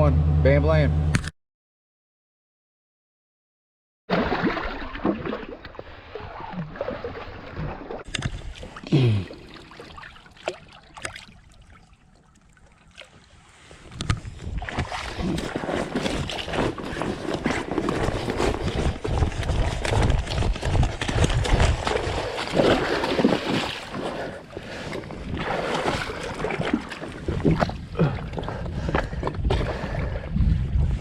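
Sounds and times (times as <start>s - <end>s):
water splashing around kayak: 4.1s - 31.0s
wind on microphone: 13.8s - 23.6s, 24.6s - 31.0s.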